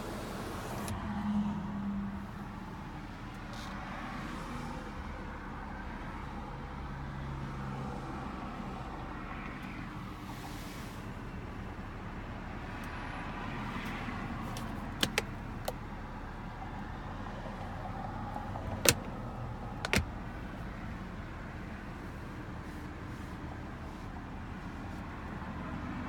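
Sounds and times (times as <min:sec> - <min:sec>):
sharp clicks: 0:19.8 - 0:20.1.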